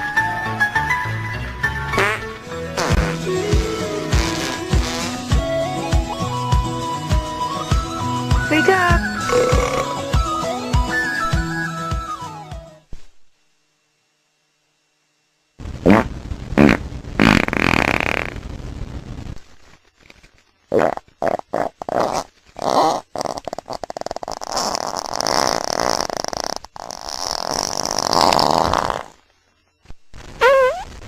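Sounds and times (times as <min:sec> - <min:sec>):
sputtering fart-like noises: 0:01.9 - 0:06.2, 0:08.6 - 0:11.4, 0:15.7 - 0:18.5, 0:20.7 - 0:29.3, 0:30.3 - 0:31.0.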